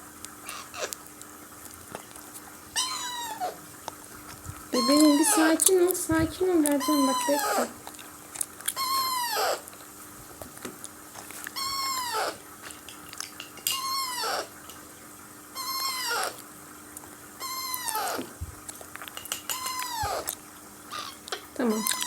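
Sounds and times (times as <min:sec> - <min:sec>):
parakeet chick begging calls: 0:00.4 - 0:01.0, 0:02.8 - 0:03.6, 0:04.8 - 0:05.6, 0:06.7 - 0:07.8, 0:08.8 - 0:09.7, 0:11.6 - 0:12.4, 0:13.7 - 0:14.5, 0:15.6 - 0:16.4, 0:17.4 - 0:18.3, 0:20.9 - 0:22.0.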